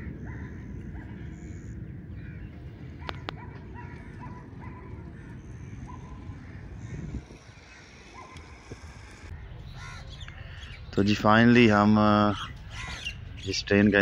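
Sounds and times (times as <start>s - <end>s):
birds calling: 0.0s - 14.0s
steady low rumble: 0.0s - 14.0s.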